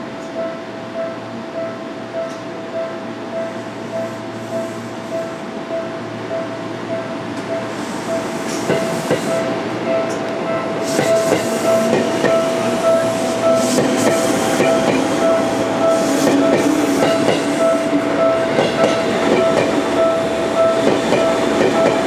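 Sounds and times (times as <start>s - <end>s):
train wheels clacking over rail joints: 10.8s - 12.5s, 16.1s - 17.8s.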